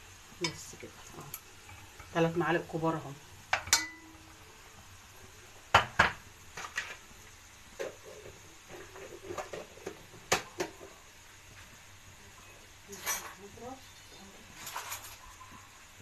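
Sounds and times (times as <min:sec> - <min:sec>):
metal utensils knocking on pot: 0:03.5 - 0:04.2.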